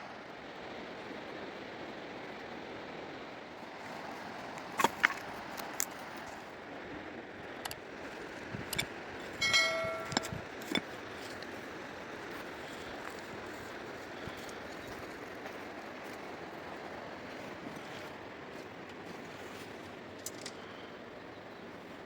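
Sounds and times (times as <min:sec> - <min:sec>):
sharp knocks and clicks: 0:08.7 - 0:10.9
ringing clang: 0:09.4 - 0:10.4.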